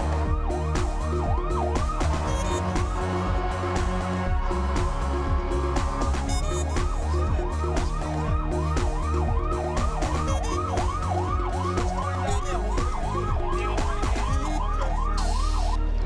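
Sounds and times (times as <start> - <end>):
background music: 0.0 - 16.0
fire truck siren yelping: 6.5 - 15.9.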